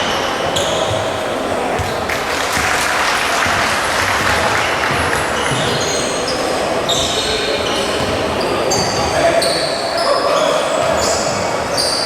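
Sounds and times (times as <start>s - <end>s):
sneakers squeaking on court: 0.0s - 2.1s, 3.4s - 12.0s
crowd noise: 0.0s - 12.0s
ball bouncing: 1.8s - 2.8s.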